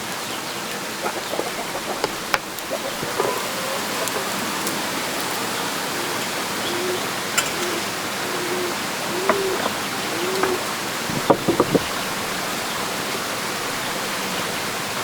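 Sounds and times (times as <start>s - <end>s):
steady rushing hiss: 0.0s - 15.0s
chickens clucking softly: 0.8s - 12.0s.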